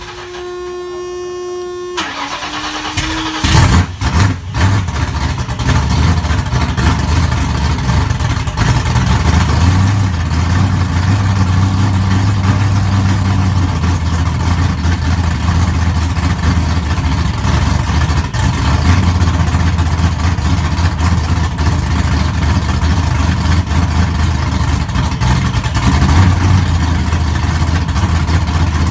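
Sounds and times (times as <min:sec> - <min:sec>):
starter whine cranking: 0:00.0 - 0:05.6
car engine idling: 0:00.0 - 0:28.9.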